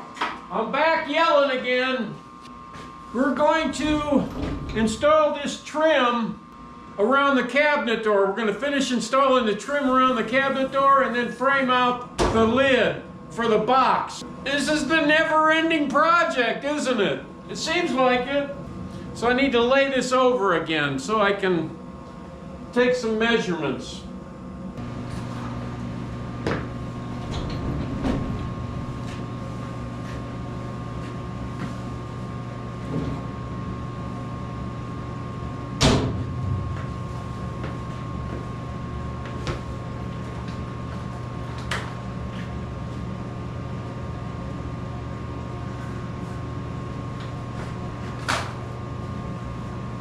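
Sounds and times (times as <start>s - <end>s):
steady machine hum: 0.0s - 50.0s.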